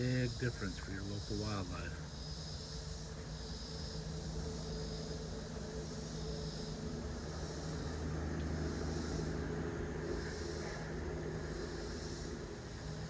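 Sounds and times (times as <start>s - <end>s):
insects calling: 0.0s - 13.0s
steady low hum: 0.0s - 13.0s.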